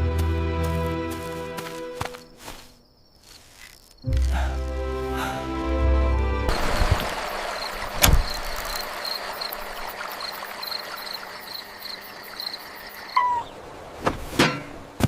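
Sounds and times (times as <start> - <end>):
outdoor night ambience: 0.0 - 15.0
crickets chirping: 1.3 - 5.4, 6.5 - 13.5.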